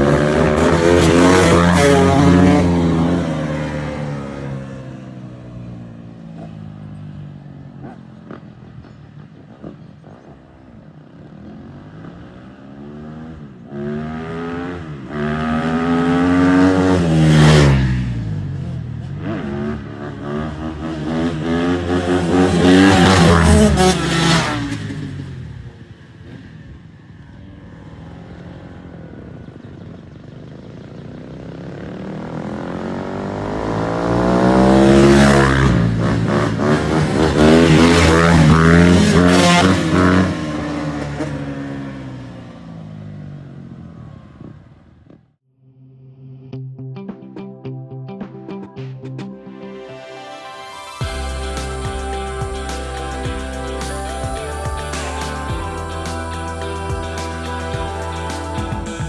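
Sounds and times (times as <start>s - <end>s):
dirt bike engine revving: 0.0s - 6.8s, 11.2s - 30.0s, 30.6s - 43.2s, 51.0s - 59.0s.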